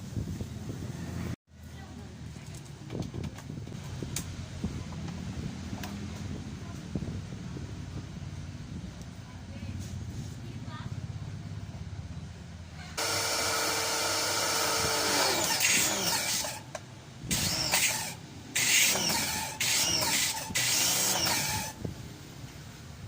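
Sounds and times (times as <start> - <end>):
pressure washer motor: 13.0 - 16.7, 17.3 - 21.8.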